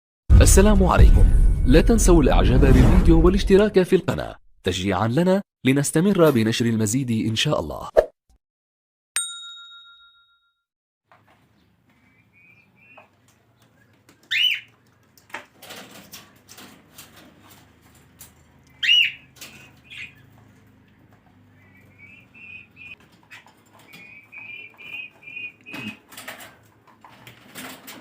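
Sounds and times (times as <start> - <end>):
bell-like ding: 9.2 - 10.6
birds chirping and calling: 11.5 - 15.0, 18.7 - 26.2
small clicks and rustles: 13.0 - 21.4, 25.6 - 28.0
loud whistled bird calls: 18.8 - 20.2, 21.6 - 23.0, 23.9 - 26.0.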